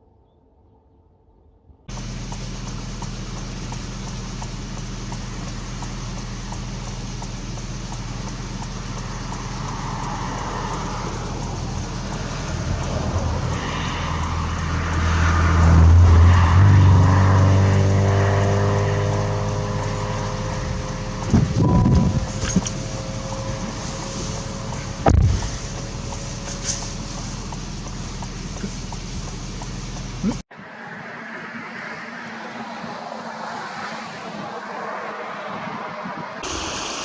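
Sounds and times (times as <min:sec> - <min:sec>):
vehicle engine running: 0:01.9 - 0:30.4.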